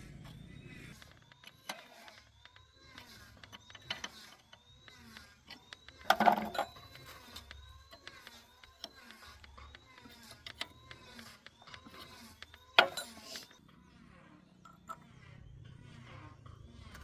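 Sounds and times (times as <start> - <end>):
faint repeating squeaks: 0.0 - 17.0
metal parts clicking: 2.9 - 4.6, 5.4 - 13.6
metal clatter: 6.1 - 7.0.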